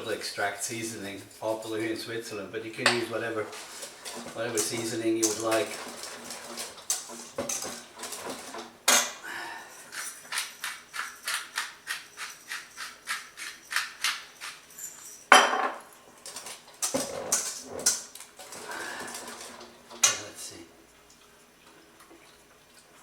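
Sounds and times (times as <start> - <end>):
utensil clinking against bowl: 2.8 - 20.3.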